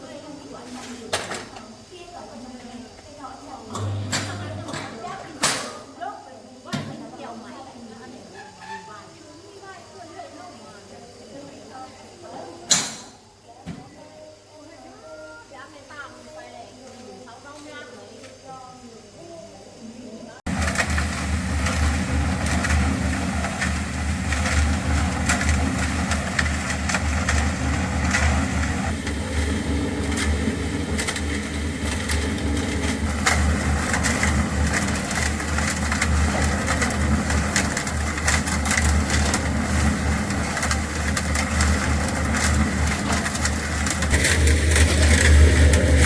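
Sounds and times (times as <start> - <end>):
engine pulsing rumble: 20.5 - 46.0.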